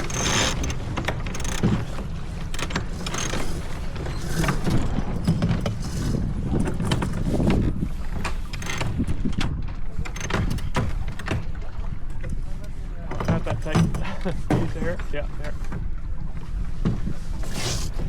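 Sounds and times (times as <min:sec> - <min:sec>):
sharp clicks and knocks: 0:00.0 - 0:14.6
water rushing along hull: 0:00.0 - 0:18.0
wind buffeting microphone: 0:03.6 - 0:12.2.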